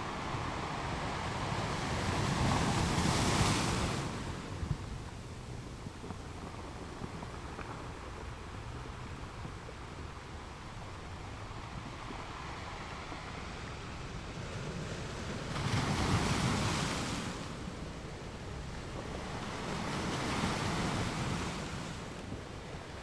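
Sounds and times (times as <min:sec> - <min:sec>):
ocean waves washing onto shore: 0:00.0 - 0:23.0.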